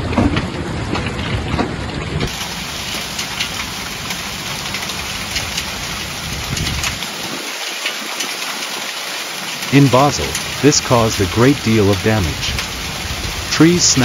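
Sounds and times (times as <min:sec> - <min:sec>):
heavy rain downpour: 0:00.0 - 0:14.0.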